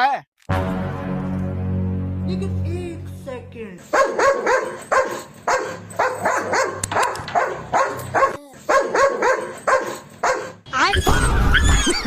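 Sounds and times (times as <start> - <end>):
dog barking: 3.9 - 10.6.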